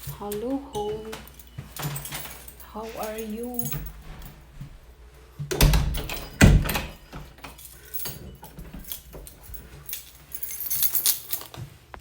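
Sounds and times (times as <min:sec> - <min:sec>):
keys jangling: 0:00.0 - 0:11.6
heavy knocks on door: 0:05.5 - 0:07.1
door lock clicks and rattles: 0:05.5 - 0:07.6, 0:08.4 - 0:09.5.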